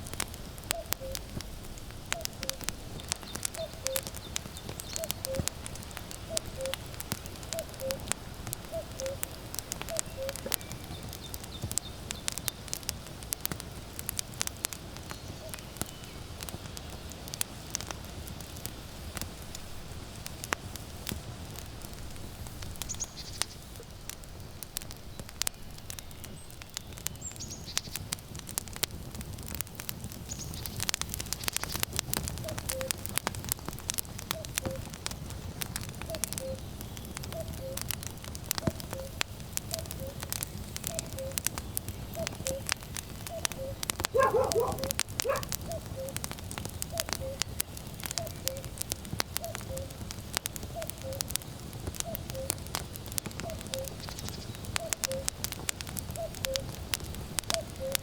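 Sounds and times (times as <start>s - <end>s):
low rumble of wind: 0.0s - 57.8s
wood fire crackling: 0.0s - 58.0s
cuckoo calling: 0.7s - 1.3s, 3.5s - 4.2s, 4.9s - 5.6s, 6.2s - 6.9s, 7.6s - 8.1s, 8.7s - 11.0s, 32.4s - 33.0s, 36.1s - 36.7s, 37.3s - 37.8s, 38.6s - 40.3s, 40.9s - 41.5s, 42.2s - 42.7s, 43.3s - 46.2s, 46.9s - 47.5s, 48.2s - 48.7s, 49.4s - 49.9s, 50.7s - 51.3s, 52.0s - 52.6s, 53.4s - 55.3s, 56.2s - 56.7s, 57.5s - 58.0s.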